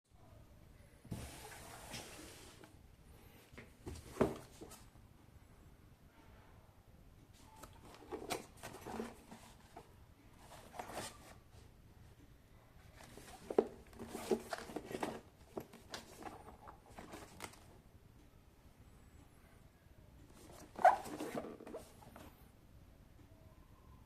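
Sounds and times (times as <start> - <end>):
packaging rustling and scraping: 7.6 - 11.4, 12.9 - 17.7, 20.3 - 22.3.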